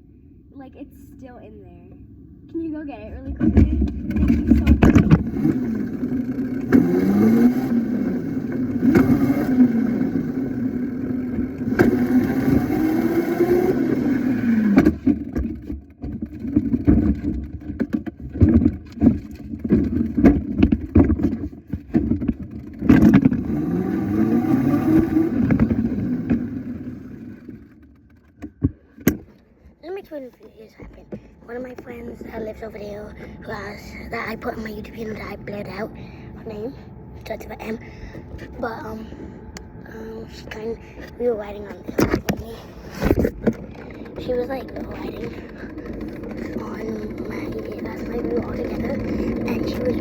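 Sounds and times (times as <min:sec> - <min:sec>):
small motorcycle engine revving: 0:03.4 - 0:28.3, 0:37.6 - 0:50.0.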